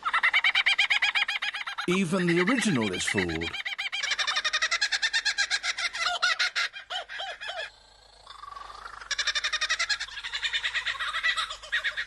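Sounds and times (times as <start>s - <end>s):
bird singing laughing notes: 1.7s - 4.0s.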